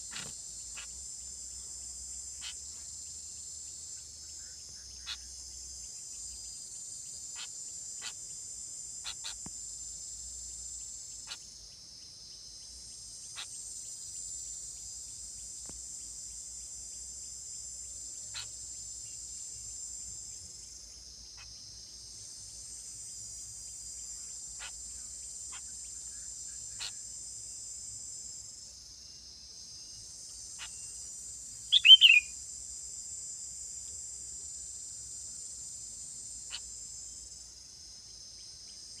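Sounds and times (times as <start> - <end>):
faint insect chirps: 0.0 - 39.0
high-pitched insect chorus: 0.0 - 39.0
bird call falling in pitch: 31.7 - 32.3.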